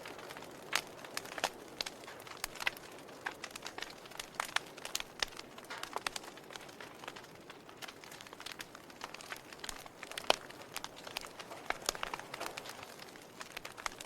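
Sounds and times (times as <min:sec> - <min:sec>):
logs crackling in fireplace: 0:00.0 - 0:14.0
soft fire hiss: 0:00.0 - 0:14.0.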